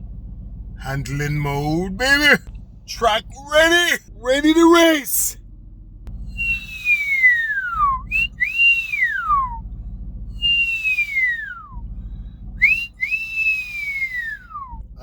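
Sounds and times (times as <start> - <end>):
low rumble: 5.4 - 6.8, 7.6 - 12.9
person whistling pitch glides: 6.3 - 9.6, 10.4 - 11.7, 12.6 - 14.7.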